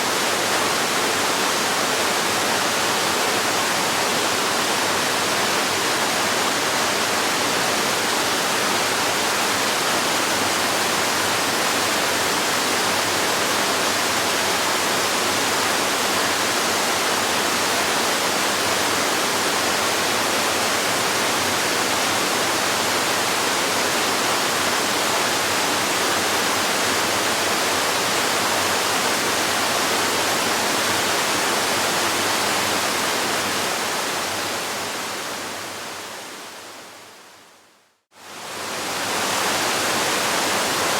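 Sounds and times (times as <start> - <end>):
waterfall rushing: 38.2 - 40.9.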